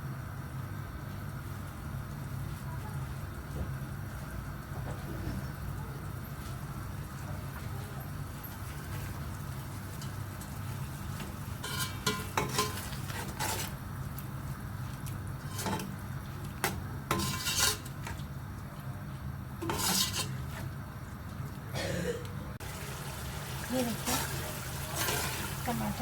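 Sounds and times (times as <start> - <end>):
metal spoon scraping a pot: 11.6 - 13.8, 15.4 - 16.0, 17.1 - 18.2, 19.6 - 20.7.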